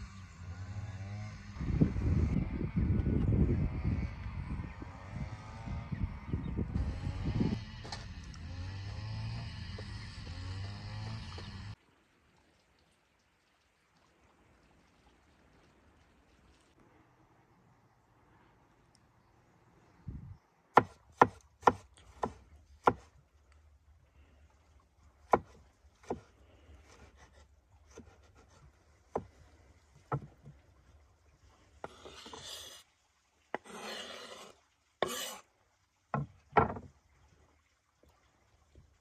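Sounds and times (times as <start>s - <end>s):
scraping or rubbing: 31.9s - 32.8s, 33.6s - 35.4s
sharp knocks on wood: 36.2s - 36.9s.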